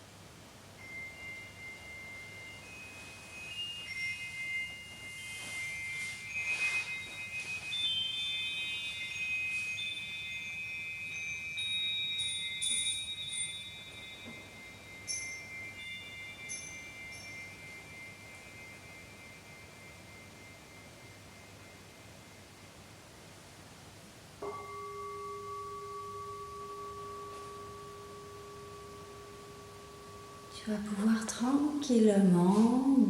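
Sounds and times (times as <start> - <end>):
chimes ringing: 0.8 - 22.7, 24.4 - 33.0.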